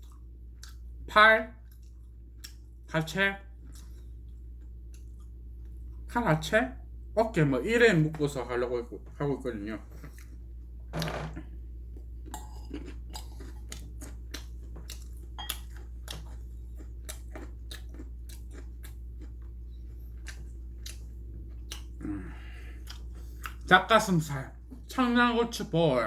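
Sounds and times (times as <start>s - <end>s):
person chewing food: 0.0s - 1.0s, 1.6s - 2.9s, 3.5s - 6.1s, 9.8s - 23.7s
steady low hum: 0.0s - 26.0s.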